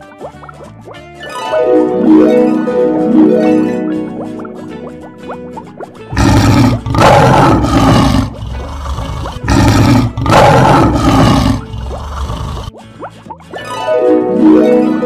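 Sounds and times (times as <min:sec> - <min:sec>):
lion growling and roaring: 0:06.1 - 0:12.7.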